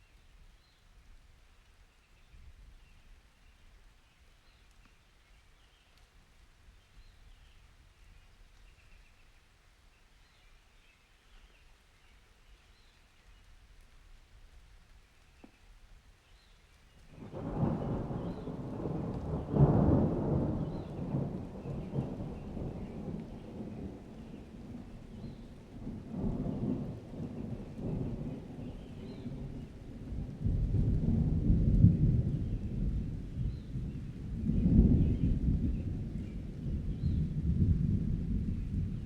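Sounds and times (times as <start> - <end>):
rolling thunder rumbling: 17.1 - 39.0.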